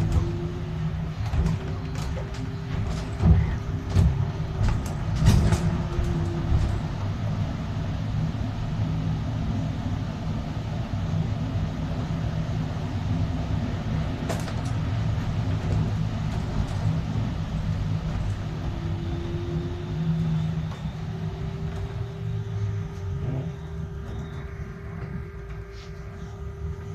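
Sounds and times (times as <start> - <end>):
bus motor and road rumble: 0.0 - 26.9
whine rising in pitch: 17.0 - 26.9.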